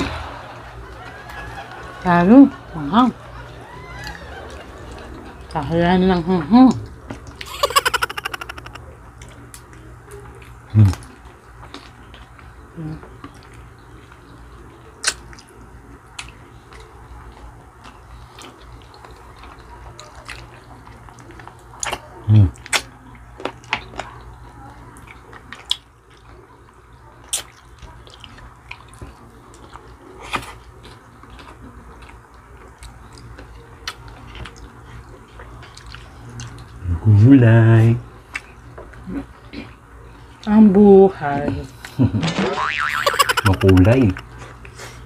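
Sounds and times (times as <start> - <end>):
low hummed voice: 8.4 - 11.3, 12.6 - 13.4, 22.0 - 22.6
wet chewing and lip smacking: 15.0 - 26.3, 27.2 - 36.8.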